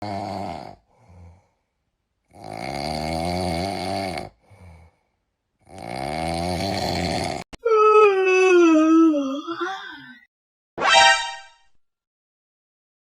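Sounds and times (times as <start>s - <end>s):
loud snoring: 0.0s - 1.4s, 2.3s - 4.9s, 5.6s - 7.5s.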